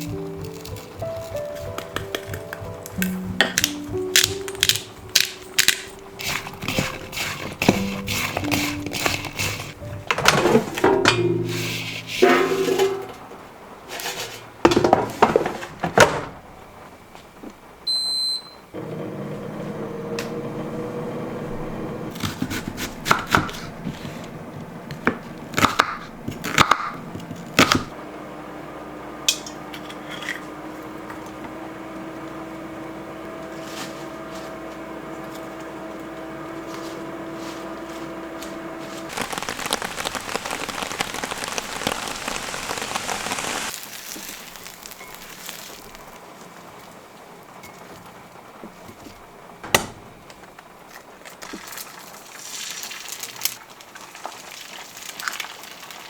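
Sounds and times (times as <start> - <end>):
handling clicks and knocks: 0.0 - 9.2
electric appliance hum: 17.6 - 46.3.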